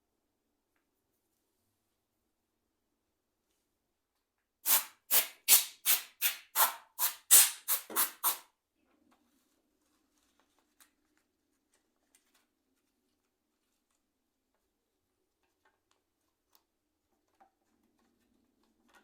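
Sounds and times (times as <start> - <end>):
quick swishing rubbing strokes: 4.7 - 8.4.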